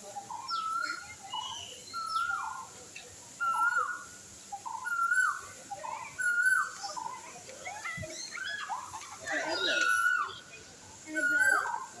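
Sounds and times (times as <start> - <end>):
bird whistled call: 0.4 - 2.6, 4.7 - 5.5, 6.1 - 7.0.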